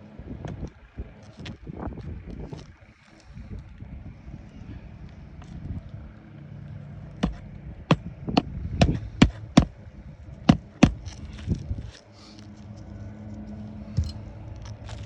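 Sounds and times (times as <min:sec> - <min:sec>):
wind noise on microphone: 0:00.0 - 0:06.0, 0:07.6 - 0:12.0
hammer driving nail into shingle: 0:07.2 - 0:09.7, 0:10.5 - 0:11.1.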